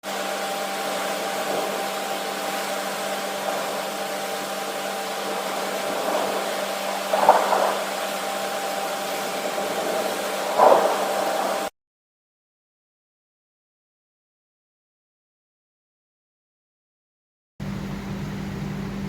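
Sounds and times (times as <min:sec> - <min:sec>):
steady hum: 0:00.0 - 0:11.7, 0:17.6 - 0:19.0
rain and wind rushing: 0:00.1 - 0:11.7.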